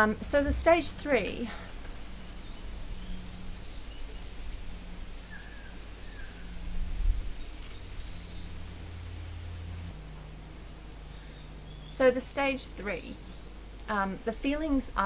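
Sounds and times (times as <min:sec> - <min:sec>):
low background hum: 0:00.0 - 0:15.0
faint bird chirps: 0:05.2 - 0:08.5.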